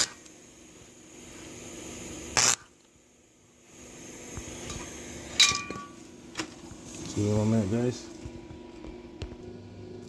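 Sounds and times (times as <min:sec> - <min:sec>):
short sharp hissing burst: 0:01.3 - 0:02.7.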